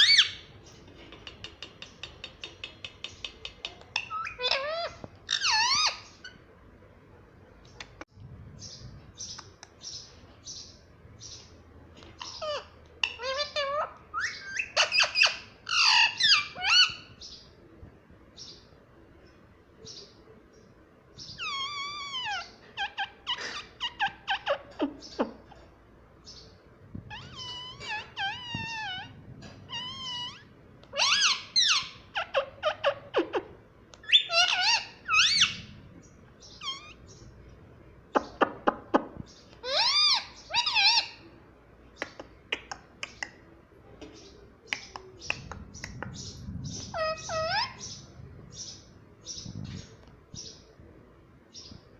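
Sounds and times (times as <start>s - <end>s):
parrot squawking and chirping: 0.0s - 6.5s, 12.0s - 17.3s, 21.2s - 25.7s, 27.0s - 37.3s, 38.1s - 41.3s, 44.7s - 50.5s.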